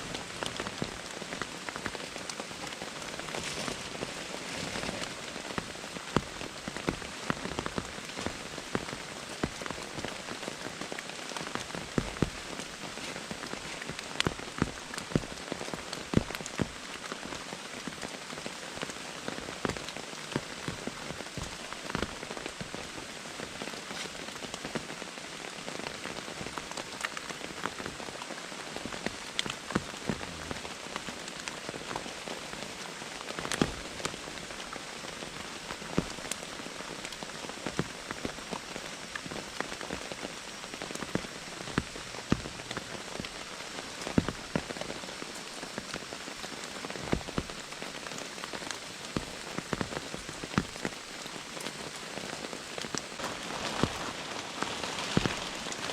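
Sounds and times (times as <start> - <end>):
heavy rain falling: 0.0 - 55.9
raindrops ticking: 0.0 - 55.9.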